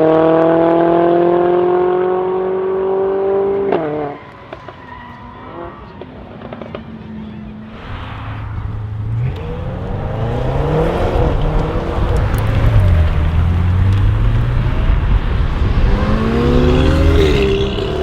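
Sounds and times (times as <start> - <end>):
car engine revving loudly: 8.7 - 18.0.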